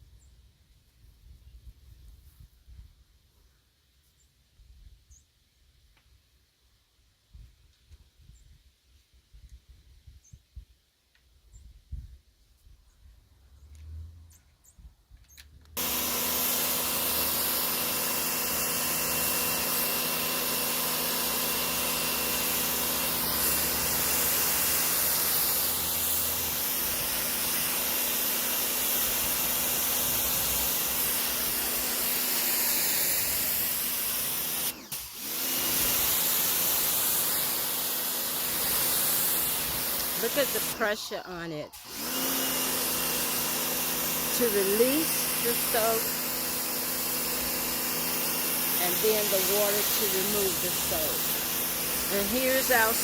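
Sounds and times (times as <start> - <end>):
high-pressure water spray hissing: 15.8 - 53.0
pressure washer motor humming: 15.8 - 53.0.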